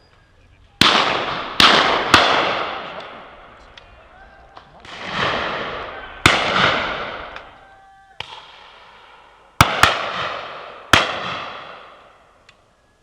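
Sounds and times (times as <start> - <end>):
rolling echo of shots: 0.8 - 3.6, 4.8 - 7.6, 8.2 - 12.2
shotgun shots: 0.8 - 3.6, 4.8 - 7.5, 8.2 - 12.2.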